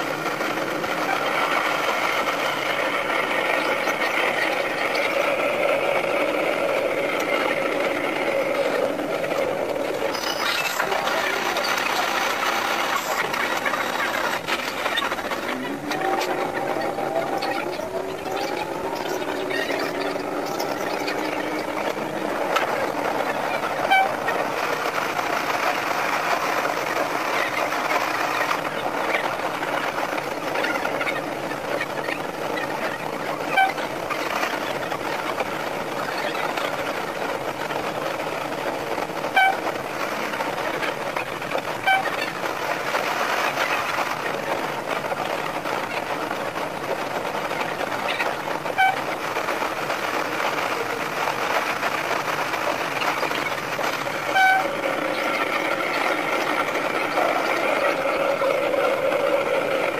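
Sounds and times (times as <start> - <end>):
sped-up railcar running noise: 0.0 - 59.9.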